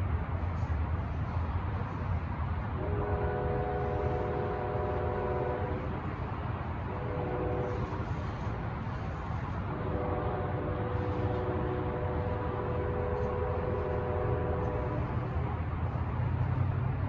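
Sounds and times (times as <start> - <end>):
low train rumble: 0.0 - 17.0
train horn blasts: 2.7 - 16.0.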